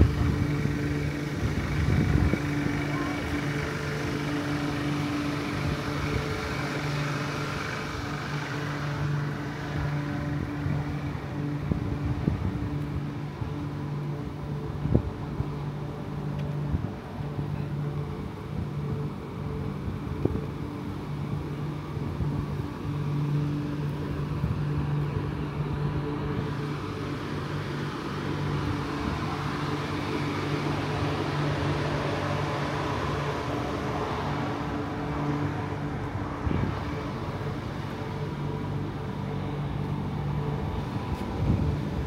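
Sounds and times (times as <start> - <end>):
train carriage mechanical hum: 0.0 - 42.0.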